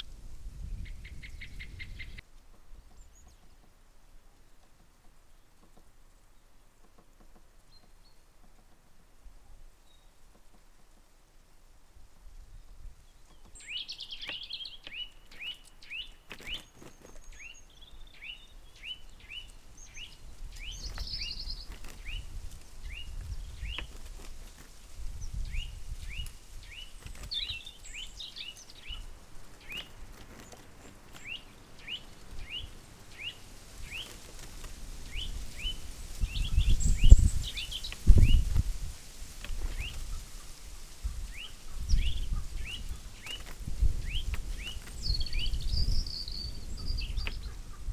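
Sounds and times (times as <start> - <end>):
wind rumble on microphone: 0.0 - 3.5, 12.0 - 14.0, 17.3 - 47.9
woodpecker sharp kik calls: 13.2 - 38.8, 39.4 - 47.9.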